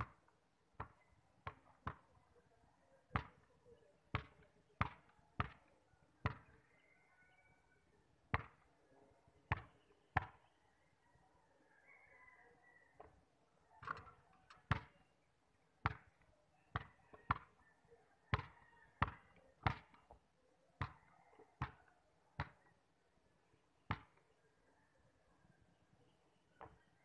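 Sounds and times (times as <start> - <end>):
basketball bouncing on concrete: 0.8 - 2.0, 4.1 - 5.6, 6.2 - 6.5, 8.4 - 8.6, 15.8 - 16.2, 16.8 - 17.5, 18.3 - 20.0, 23.9 - 24.2.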